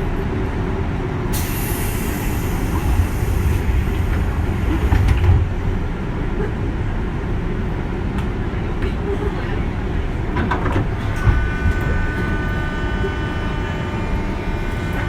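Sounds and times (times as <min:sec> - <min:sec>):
train wheels rumbling on rail: 0:00.0 - 0:15.0
hiss: 0:01.3 - 0:03.7.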